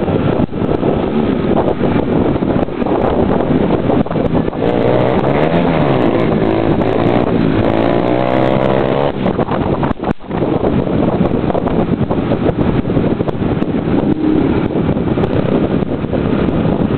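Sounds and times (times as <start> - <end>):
motorcycle engine revving: 0.8 - 9.8, 13.4 - 16.5.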